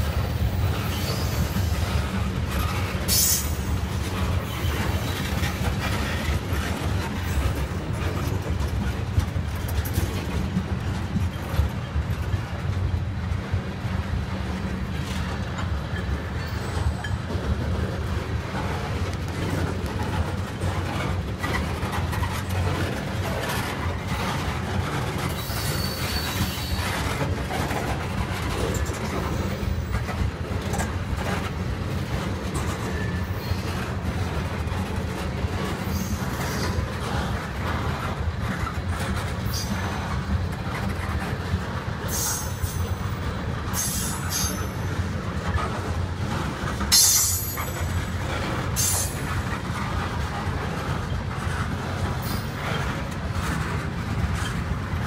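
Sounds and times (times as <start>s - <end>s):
freight train rolling on rails: 0.0s - 55.0s
clicks at rail joints: 16.8s - 55.0s
high wheel squeals: 25.4s - 26.9s.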